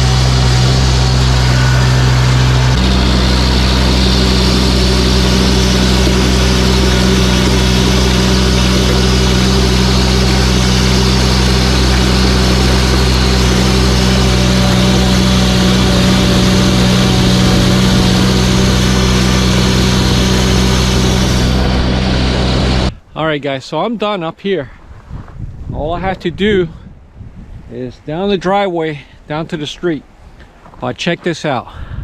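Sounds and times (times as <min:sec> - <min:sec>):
tractor engine running: 0:00.0 - 0:22.9.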